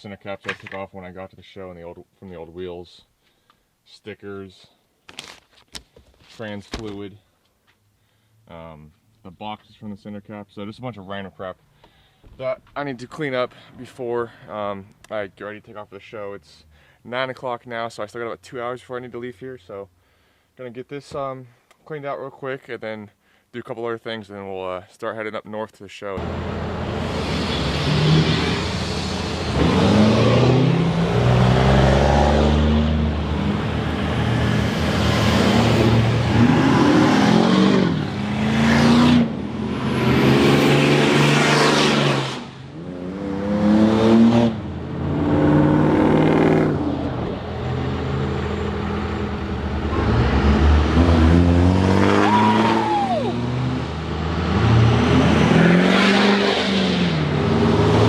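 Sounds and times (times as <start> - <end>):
truck engine accelerating: 26.2 - 58.0.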